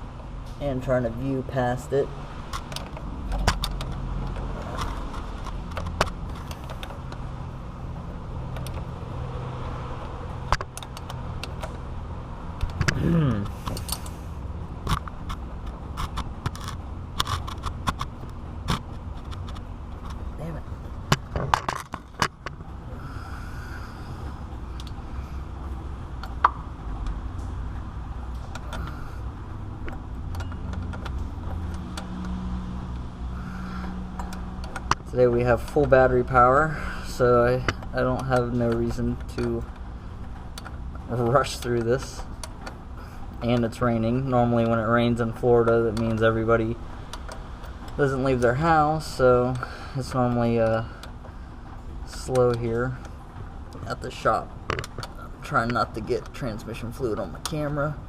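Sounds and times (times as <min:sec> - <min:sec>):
low steady rumble: 0:00.0 - 0:58.0
steady low hum: 0:00.0 - 0:58.0.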